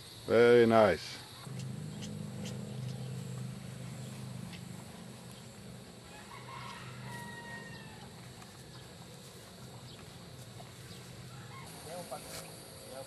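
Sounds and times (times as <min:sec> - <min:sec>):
steady low hum: 0:01.3 - 0:13.0
rooster crowing faintly: 0:01.5 - 0:09.2.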